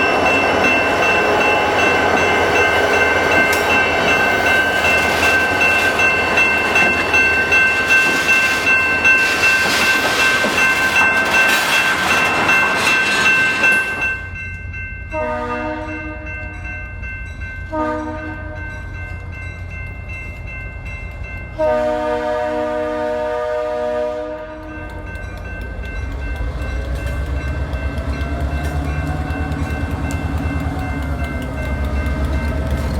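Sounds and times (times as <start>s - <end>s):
train rail noise: 0.0s - 32.9s
locomotive air horn: 15.1s - 16.5s, 17.7s - 18.7s, 21.6s - 24.8s.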